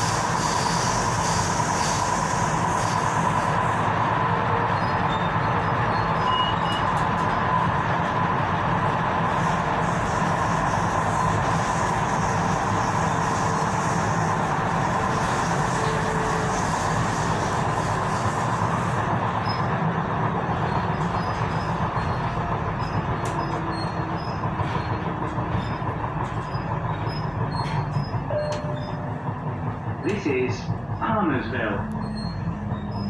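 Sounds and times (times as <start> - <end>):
train wheels rumbling on track: 0.0 - 33.0.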